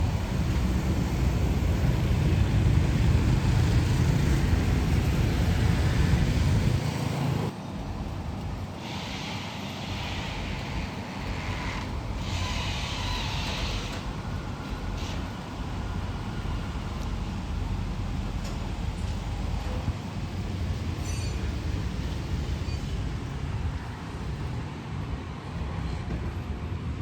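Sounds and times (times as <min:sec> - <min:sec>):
engine rumbling: 0:00.0 - 0:08.8.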